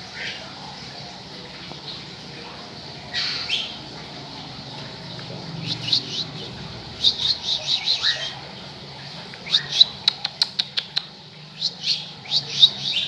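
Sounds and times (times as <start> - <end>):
bird chirping: 3.0 - 13.0
bird harsh call: 3.1 - 3.8, 5.6 - 8.6.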